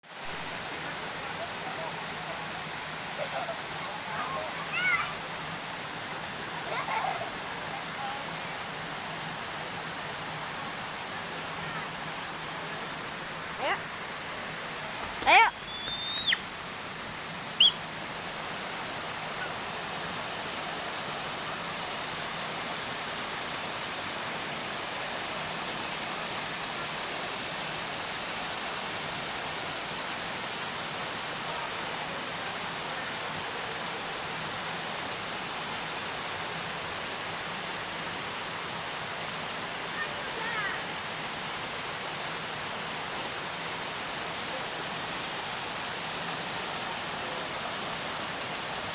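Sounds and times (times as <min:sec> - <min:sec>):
waterfall rushing: 0:00.1 - 0:48.9
short high chirp: 0:15.6 - 0:16.4.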